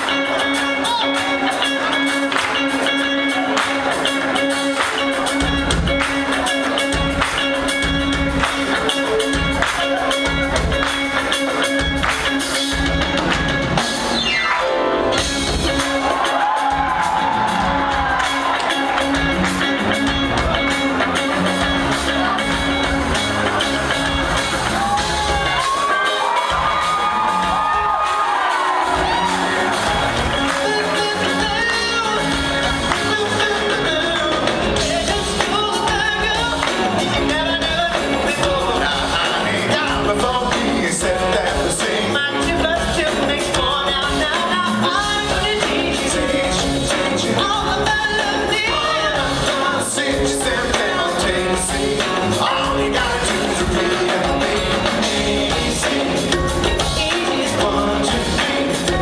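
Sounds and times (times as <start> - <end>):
upbeat band music: 0.0 - 59.0
vocal group singing in harmony: 24.7 - 59.0.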